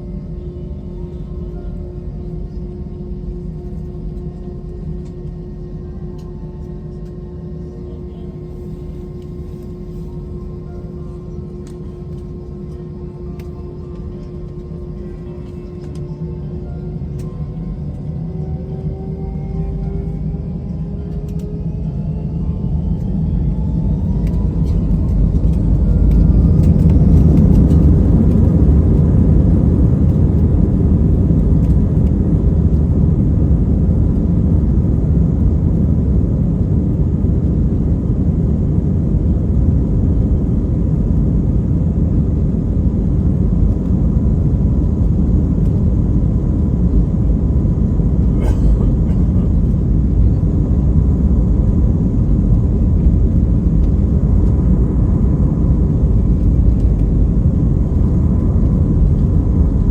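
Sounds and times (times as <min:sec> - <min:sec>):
jet engines at takeoff power: 0:00.0 - 0:59.9
rising engine whine: 0:00.0 - 0:59.9.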